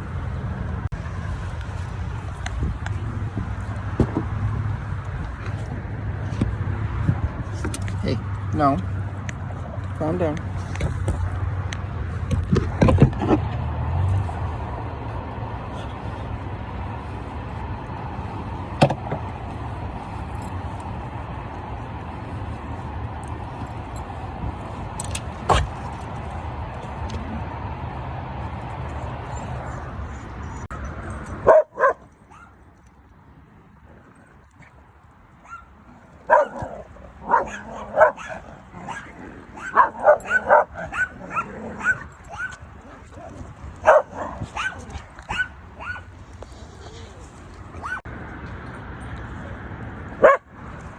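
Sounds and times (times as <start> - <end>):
car rumbling: 0.0 - 32.5, 33.8 - 50.9
dog barking and yipping: 31.3 - 32.6, 35.4 - 46.2, 46.9 - 48.1, 50.2 - 50.5.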